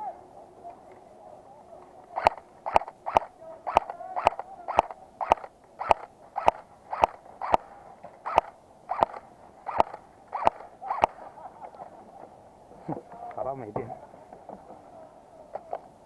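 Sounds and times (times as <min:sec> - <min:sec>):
airsoft gun shots: 0:02.2 - 0:11.2.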